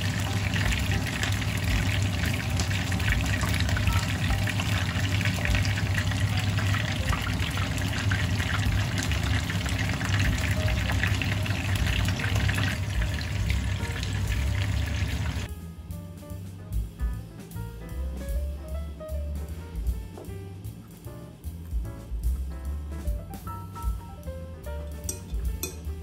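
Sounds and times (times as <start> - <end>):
food frying in hot oil: 0.0 - 15.5
low hum: 0.0 - 15.9.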